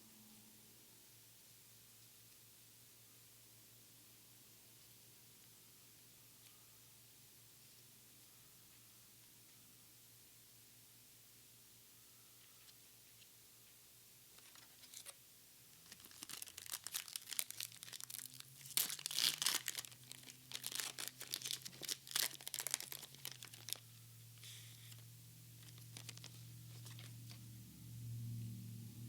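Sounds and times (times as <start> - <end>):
foil wrapper tearing and crinkling: 14.4 - 23.8, 25.6 - 27.4.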